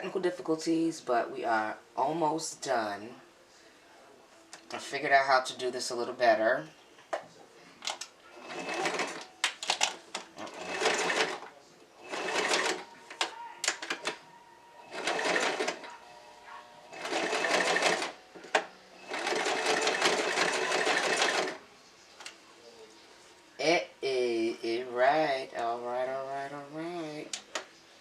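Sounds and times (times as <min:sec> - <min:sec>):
sewing machine stitching: 0:08.4 - 0:09.3, 0:10.4 - 0:11.4, 0:12.0 - 0:12.8, 0:14.9 - 0:16.0, 0:16.9 - 0:18.2, 0:19.0 - 0:21.6.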